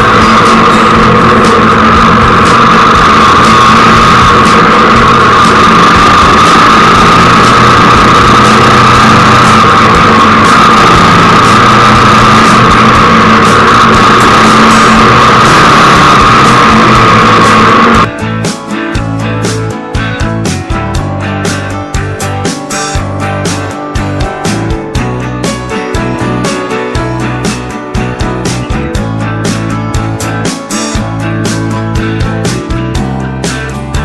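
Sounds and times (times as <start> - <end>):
motorcycle engine running: 0.0 - 18.2.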